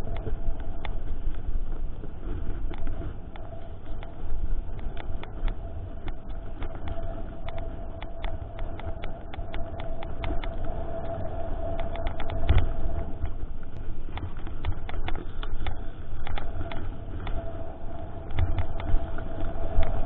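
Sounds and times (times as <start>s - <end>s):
bike clicks and rattles: 13.7s - 17.5s.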